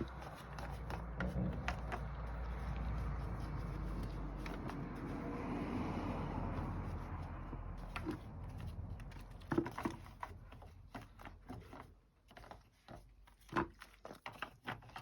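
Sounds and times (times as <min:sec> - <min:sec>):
car engine rumble: 0:00.0 - 0:11.5.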